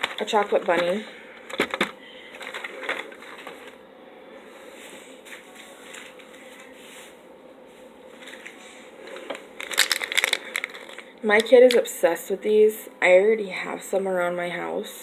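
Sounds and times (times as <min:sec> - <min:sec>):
faint steady hum: 0:00.0 - 0:15.0
plastic packaging crinkling: 0:09.1 - 0:11.8.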